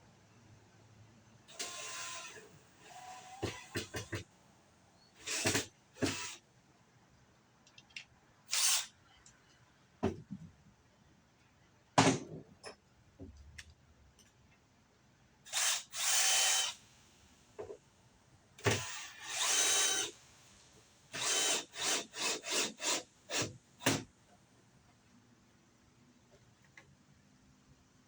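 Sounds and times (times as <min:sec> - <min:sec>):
power drill whirring: 0:01.5 - 0:04.2, 0:05.2 - 0:06.4, 0:08.5 - 0:08.9, 0:15.5 - 0:16.8, 0:18.6 - 0:20.5, 0:21.1 - 0:24.0.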